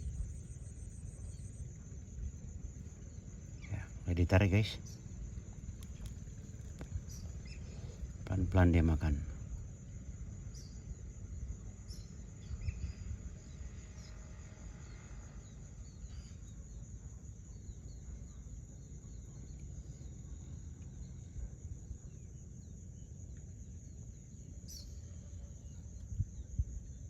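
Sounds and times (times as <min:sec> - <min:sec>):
constant low rumble: 0:00.0 - 0:27.0
high-pitched insect chorus: 0:00.0 - 0:27.0
small birds chirping: 0:01.1 - 0:09.6, 0:10.4 - 0:11.1.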